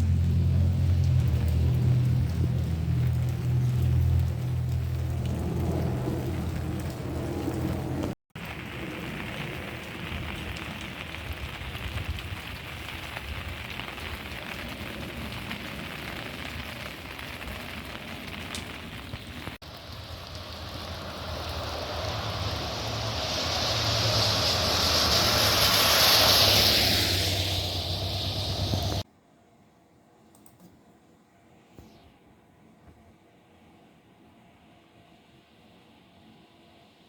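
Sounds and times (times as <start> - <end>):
rain falling: 0.0 - 29.0
broad rushing noise: 19.6 - 29.0.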